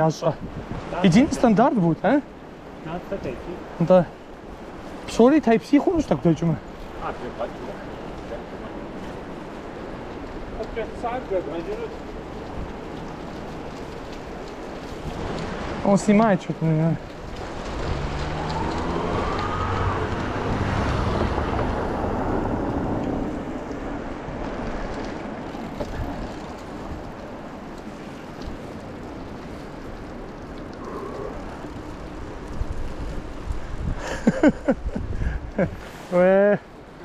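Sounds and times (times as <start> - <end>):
vehicle engine passing: 17.5 - 23.5.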